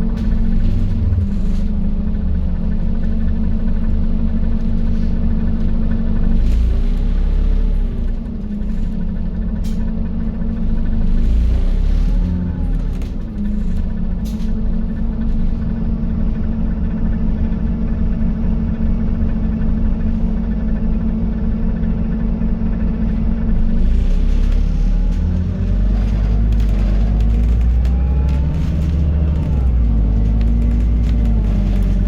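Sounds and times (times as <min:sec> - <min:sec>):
bus diesel engine humming: 0:00.0 - 0:32.0
sharp rattles: 0:24.1 - 0:32.0.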